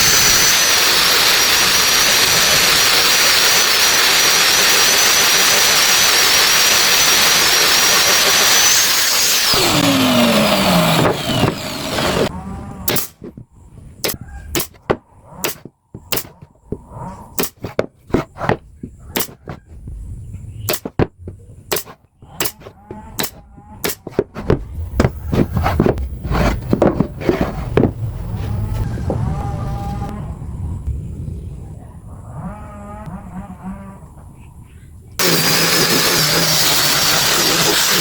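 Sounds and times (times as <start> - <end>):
machine winding down: 0.0 - 13.4, 21.7 - 26.5, 35.2 - 38.0
low rumble: 23.0 - 35.2.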